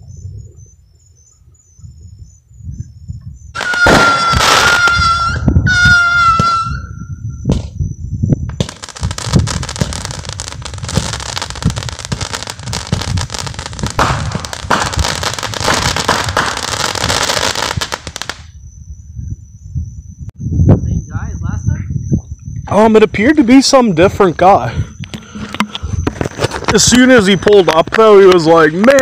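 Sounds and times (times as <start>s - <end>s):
whistling firework shot: 2.8s - 18.7s
crackling firework barrage: 3.5s - 7.8s, 8.4s - 18.6s, 25.2s - 29.0s
low firework thumps: 7.4s - 18.5s.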